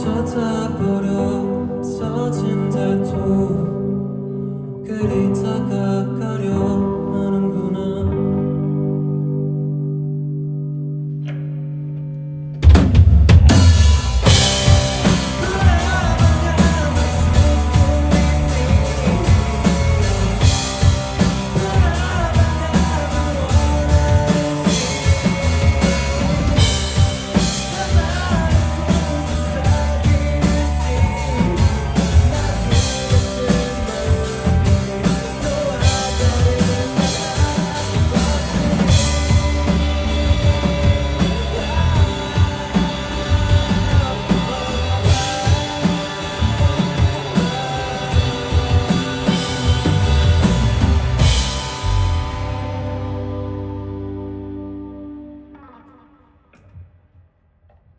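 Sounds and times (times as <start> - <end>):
electric guitar: 0.0 - 56.9
rock band playing live: 10.8 - 56.1.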